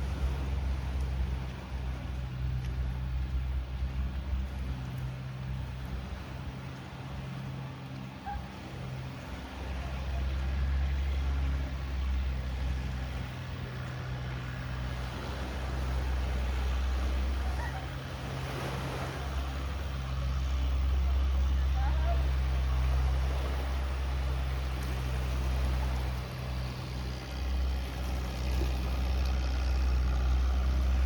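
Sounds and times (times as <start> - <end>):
engine running at low speed: 0.0 - 31.0.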